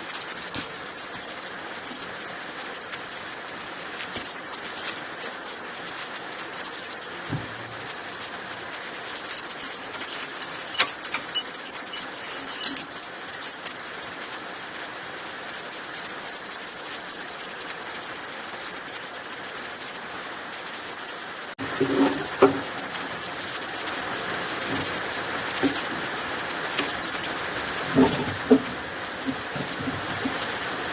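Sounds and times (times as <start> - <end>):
sharp clicks and knocks: 9.2 - 13.8.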